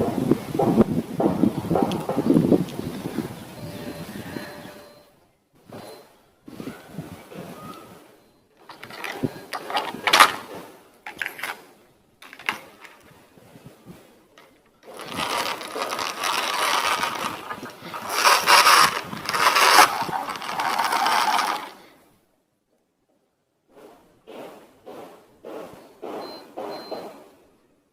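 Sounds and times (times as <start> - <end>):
toy gears whirring and rattling: 8.7 - 10.5, 12.2 - 13.0, 14.8 - 21.8
toy being handled clicks: 14.9 - 21.8.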